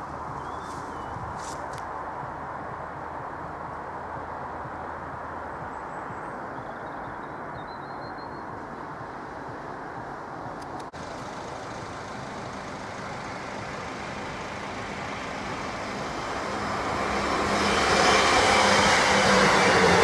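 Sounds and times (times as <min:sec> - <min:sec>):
passenger train rushing: 0:11.0 - 0:20.0.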